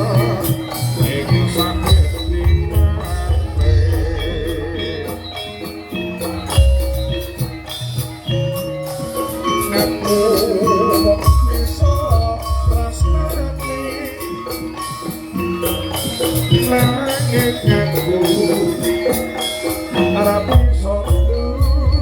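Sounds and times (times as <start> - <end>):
heavy low drum strokes: 0.0 - 5.3
drumming: 0.0 - 22.0
metallic pitched percussion melody: 0.0 - 22.0
rattling shaken percussion: 0.0 - 22.0.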